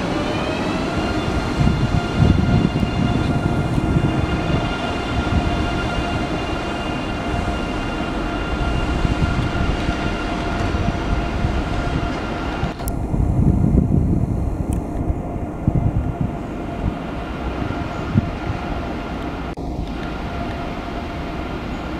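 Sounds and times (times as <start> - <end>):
high whine: 0.0 - 21.9
train running on rails: 0.0 - 21.9.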